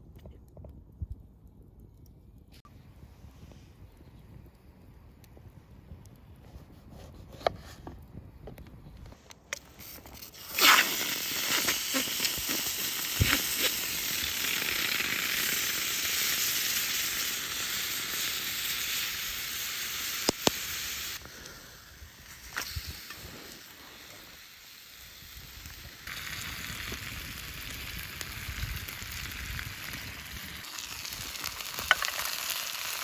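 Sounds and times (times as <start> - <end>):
food sizzling in a hot pan: 10.4 - 33.0.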